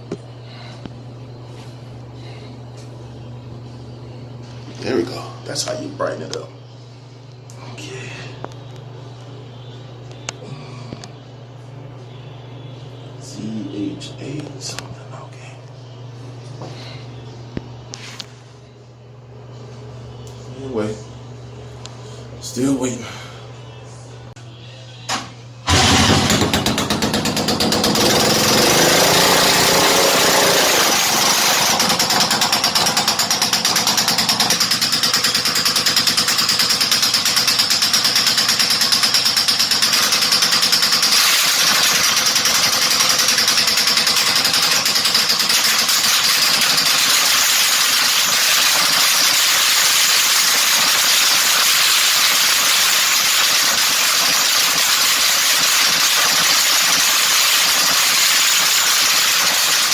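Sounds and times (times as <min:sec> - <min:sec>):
single-cylinder engine running loudly: 0:25.7 - 0:59.9.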